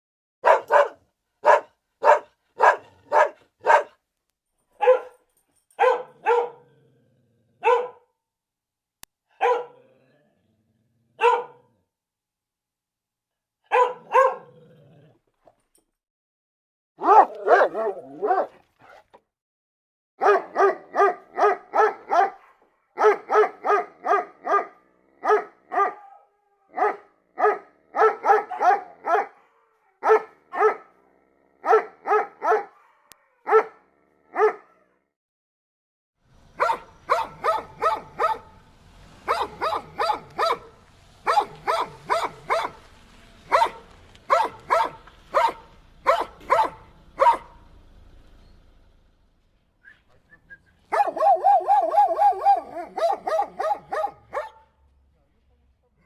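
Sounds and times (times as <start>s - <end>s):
dog barking: 0.4s - 4.0s, 4.8s - 5.2s, 5.8s - 6.7s, 7.6s - 8.1s, 9.3s - 9.8s, 11.2s - 11.8s, 13.6s - 14.6s, 17.0s - 19.1s, 20.2s - 31.0s, 31.6s - 35.0s, 36.6s - 38.6s, 39.2s - 47.6s, 50.9s - 54.8s.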